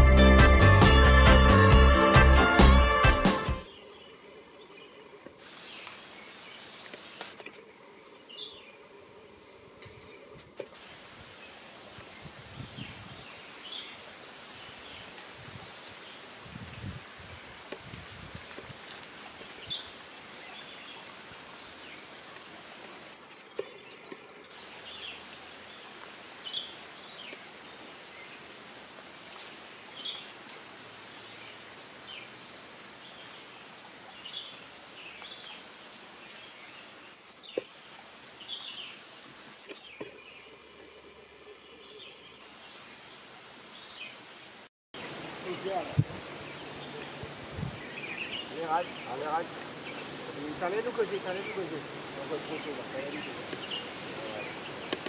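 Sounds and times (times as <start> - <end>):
steady background hiss: 3.6 - 55.0.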